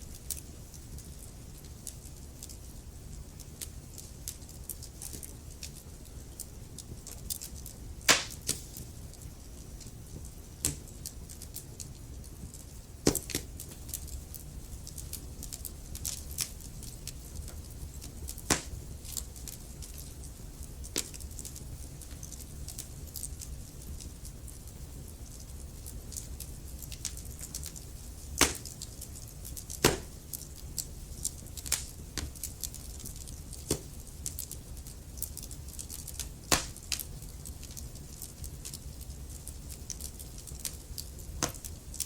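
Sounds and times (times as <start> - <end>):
logs crackling and popping: 0.0 - 42.0
low rumble of flames: 0.0 - 42.0.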